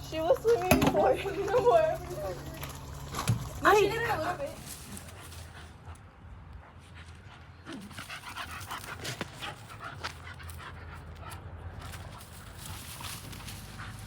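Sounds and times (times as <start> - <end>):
dog panting: 4.2 - 14.0.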